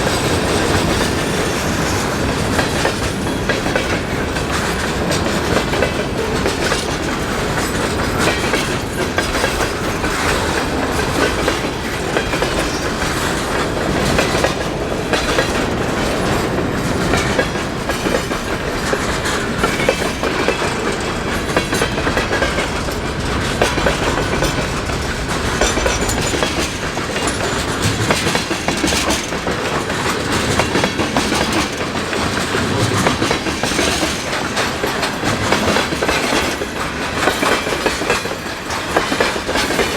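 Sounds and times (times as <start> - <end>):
train wheels clacking over rail joints: 0.0 - 39.9.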